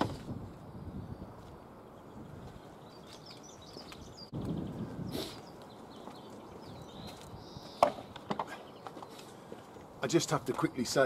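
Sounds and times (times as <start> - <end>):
birds chirping faintly: 0.5 - 11.0.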